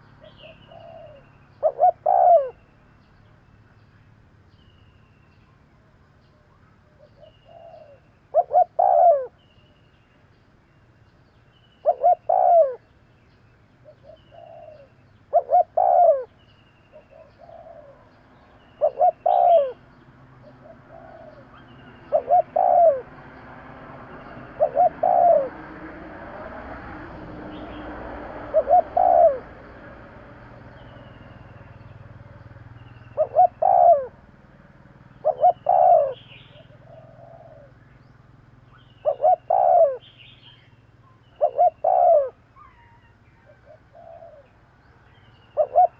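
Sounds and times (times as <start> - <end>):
dove cooing: 0.2 - 2.6, 6.9 - 9.4, 11.8 - 12.8, 13.8 - 19.8, 20.4 - 23.3, 24.0 - 30.4, 32.9 - 34.2, 35.1 - 37.8, 39.0 - 40.4, 41.3 - 44.6, 45.5 - 45.9
faint high bird chirps: 35.2 - 45.9.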